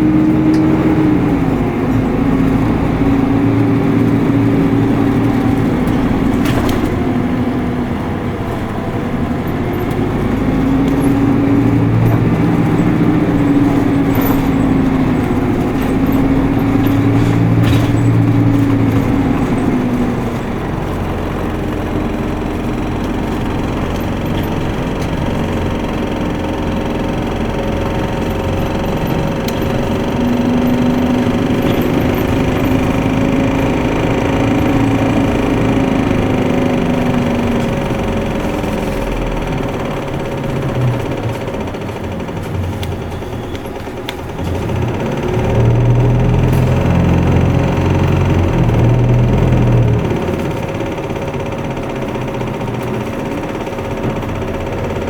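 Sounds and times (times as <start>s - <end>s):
bus diesel engine pulling hard: 0.0s - 55.0s.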